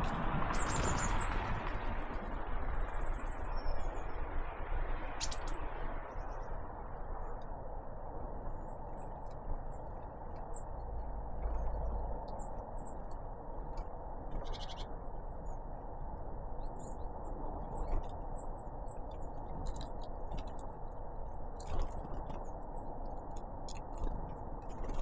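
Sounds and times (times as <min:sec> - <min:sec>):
small birds chirping: 0:14.2 - 0:15.7.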